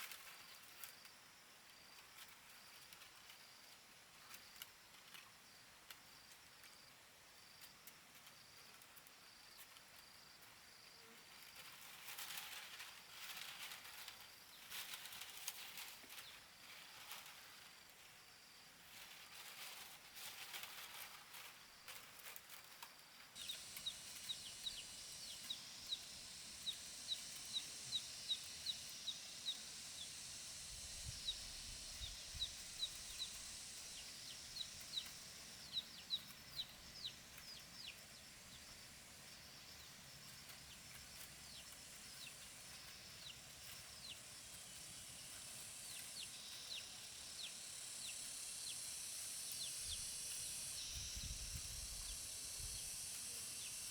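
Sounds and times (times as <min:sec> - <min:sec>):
steady high hiss: 0:09.3 - 0:53.9
bird chirping: 0:23.4 - 0:38.7.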